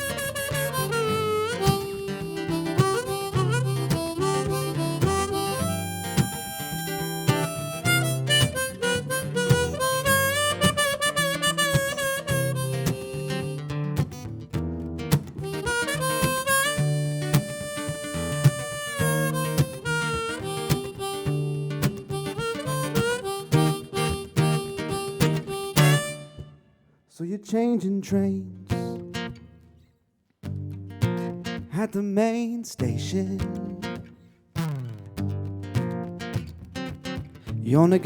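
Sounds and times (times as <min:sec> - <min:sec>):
harmonica solo: 0:00.0 - 0:14.2, 0:15.4 - 0:26.7
strummed acoustic guitar: 0:00.0 - 0:26.6, 0:28.0 - 0:38.0.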